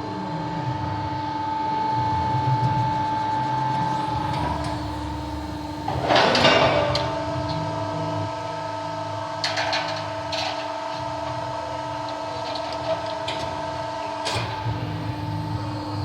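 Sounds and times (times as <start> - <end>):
press brake machine whine: 0.0 - 16.0.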